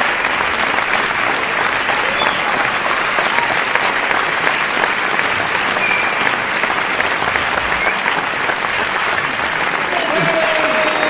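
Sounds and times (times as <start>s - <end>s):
crowd applause: 0.0s - 11.0s
faint short whistles: 2.1s - 2.6s, 5.7s - 6.4s, 7.8s - 8.1s.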